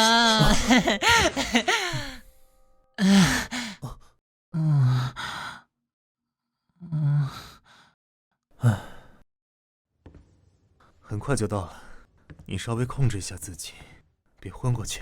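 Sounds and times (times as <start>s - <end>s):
man sighing and moaning: 3.0s - 3.9s.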